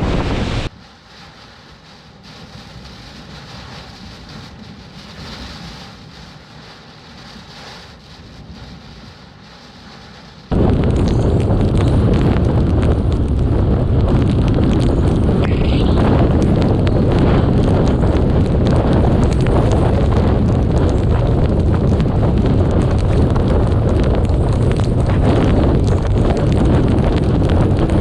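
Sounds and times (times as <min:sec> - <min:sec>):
wind buffeting microphone: 0:00.0 - 0:00.7, 0:10.4 - 0:28.0
storm wind and rain: 0:00.0 - 0:28.0.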